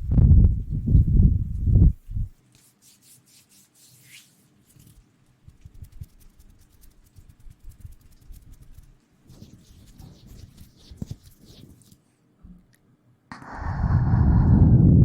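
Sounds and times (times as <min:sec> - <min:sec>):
scratchy rubbing on microphone: 0:00.0 - 0:12.0.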